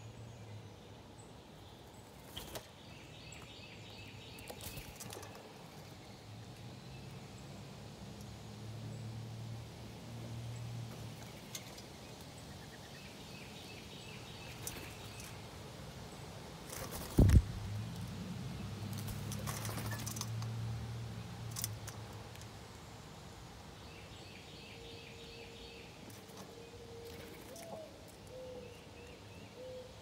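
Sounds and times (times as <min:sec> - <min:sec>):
small birds chirping: 0:00.0 - 0:09.2, 0:10.2 - 0:30.0
loud low thump: 0:17.1 - 0:17.7.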